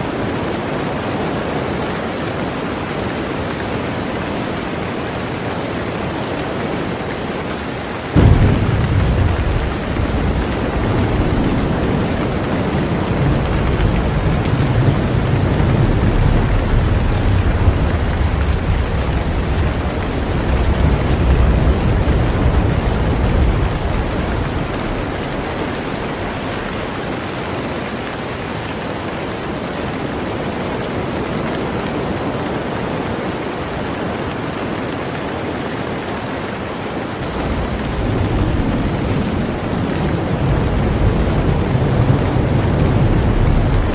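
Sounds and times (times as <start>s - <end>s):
heavy rain on a boat: 0.0s - 43.9s
low rumble: 8.2s - 26.6s.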